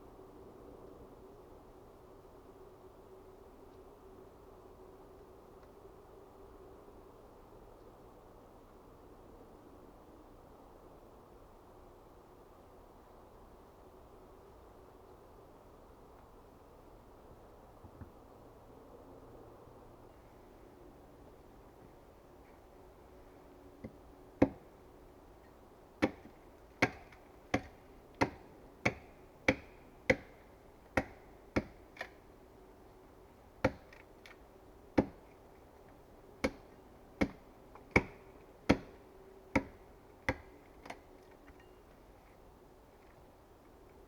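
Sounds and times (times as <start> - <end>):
hand tool knocking on wood: 26.0 - 30.3, 31.0 - 31.8.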